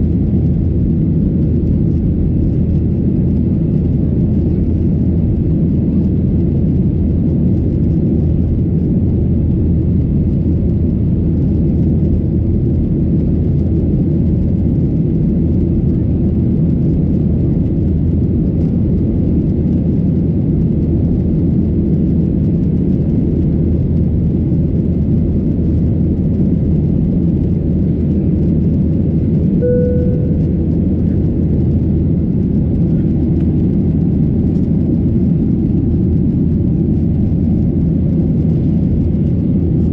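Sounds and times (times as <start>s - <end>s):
airplane cabin engine drone: 0.0s - 39.9s
short cabin chime: 29.6s - 30.7s.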